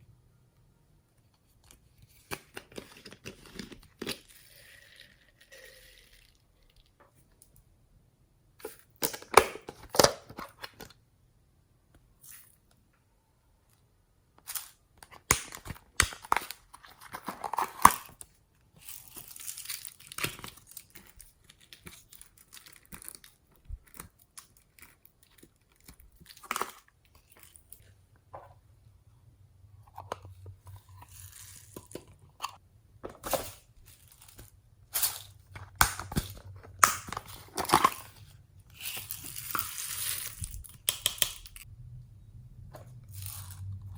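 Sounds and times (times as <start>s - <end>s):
slime crackling and crunching: 33.8s - 41.7s.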